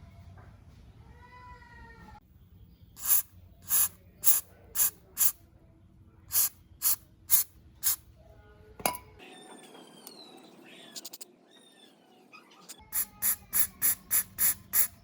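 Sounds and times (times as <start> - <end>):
short hissing spray bursts: 3.0 - 5.4, 6.3 - 8.0, 12.9 - 15.0.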